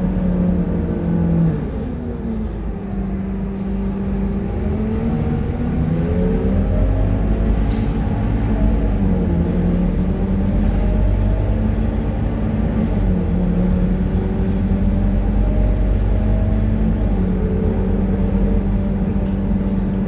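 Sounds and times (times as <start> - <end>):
bus diesel engine running: 0.0 - 20.0.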